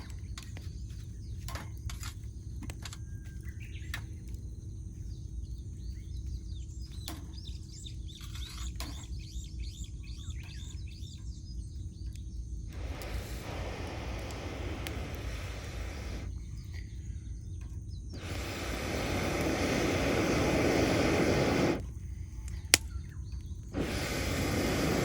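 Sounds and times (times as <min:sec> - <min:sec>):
small birds chirping: 0:00.0 - 0:25.0
steady low rumble: 0:11.4 - 0:25.0
campfire crackling and popping: 0:12.7 - 0:16.3, 0:18.2 - 0:21.8, 0:22.5 - 0:25.0
broad rushing hiss: 0:12.7 - 0:16.4, 0:18.2 - 0:21.8, 0:23.7 - 0:25.0.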